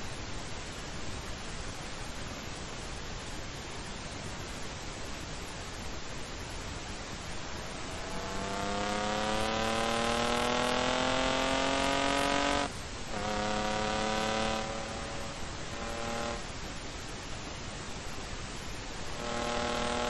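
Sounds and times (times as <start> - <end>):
wind and road hiss: 0.0 - 20.0
car engine accelerating: 7.4 - 16.5, 19.1 - 20.0.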